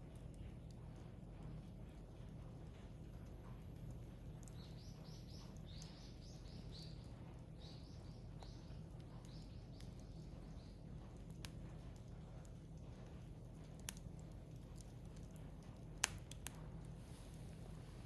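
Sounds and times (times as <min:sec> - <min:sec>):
bird chirping: 0:04.4 - 0:10.9
firewood crack: 0:11.0 - 0:17.8.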